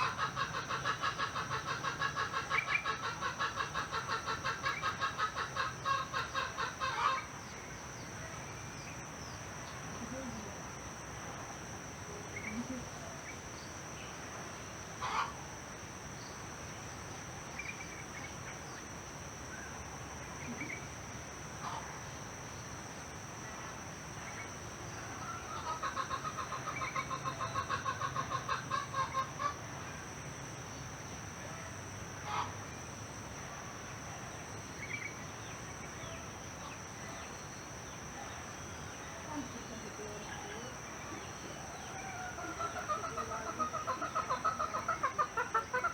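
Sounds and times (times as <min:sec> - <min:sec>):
high insect drone: 0:00.0 - 0:45.9
chickens clucking: 0:42.4 - 0:45.9.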